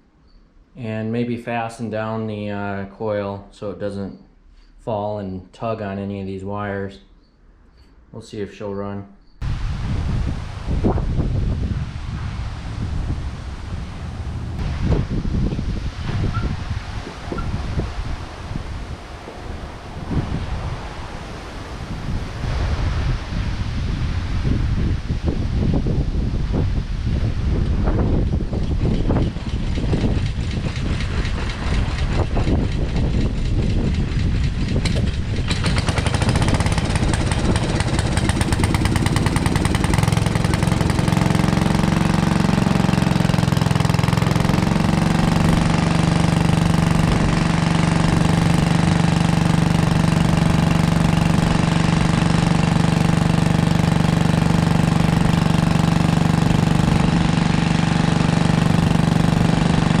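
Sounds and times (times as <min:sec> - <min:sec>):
tractor engine cranking and idling: 0:28.5 - 1:00.0.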